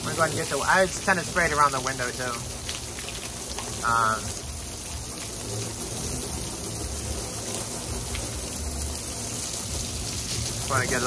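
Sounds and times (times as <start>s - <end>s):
water spraying onto air conditioner: 0.0s - 11.0s.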